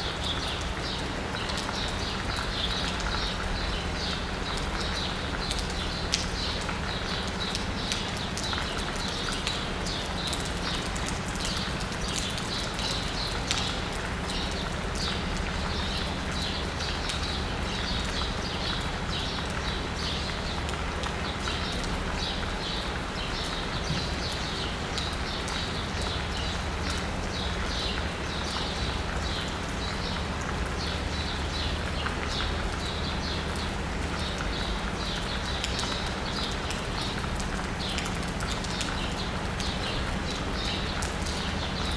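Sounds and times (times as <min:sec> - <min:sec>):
low hum of city traffic: 0:00.0 - 0:41.9
rain pattering and dripping: 0:00.0 - 0:41.9.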